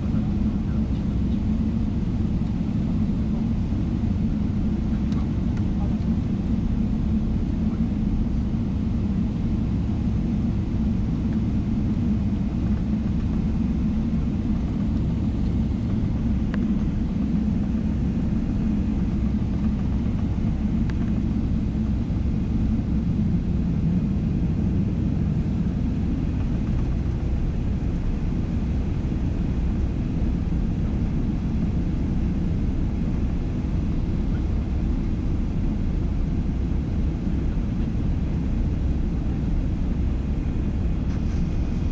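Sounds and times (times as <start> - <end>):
airplane cabin drone: 0.0 - 41.9.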